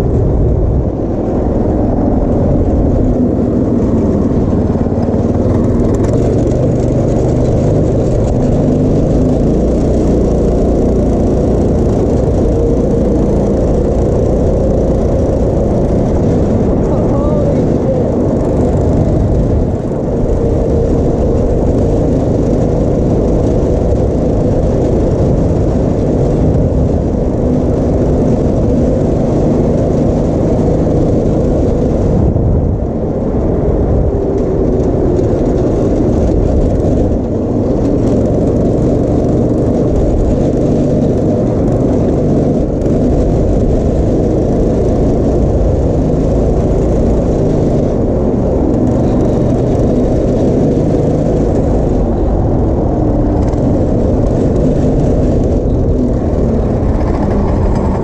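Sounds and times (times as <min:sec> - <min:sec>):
go-kart engine running: 0:00.0 - 0:58.0.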